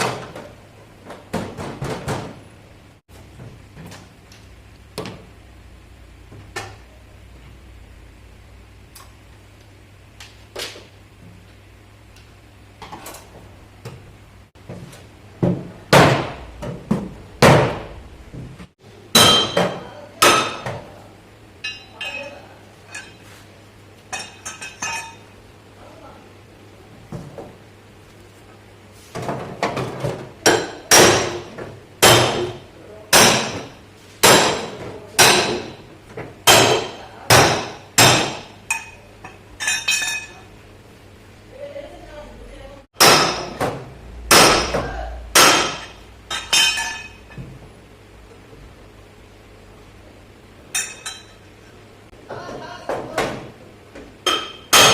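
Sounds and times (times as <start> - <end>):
hammer striking car sheet metal: 15.9 - 17.9, 30.4 - 38.9, 43.0 - 47.4, 54.3 - 54.9.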